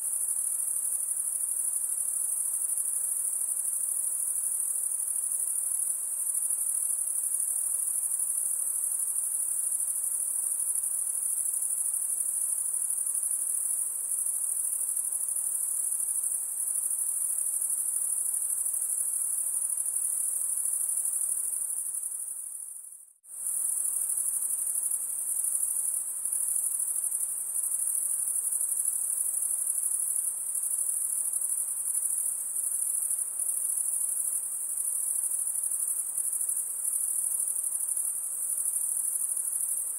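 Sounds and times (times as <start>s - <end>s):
insect chorus trilling: 0.0s - 39.9s.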